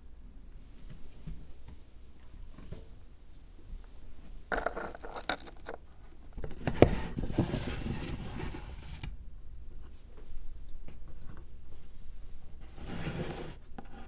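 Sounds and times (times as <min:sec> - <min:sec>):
crackly scraping rustle: 0:04.5 - 0:05.8.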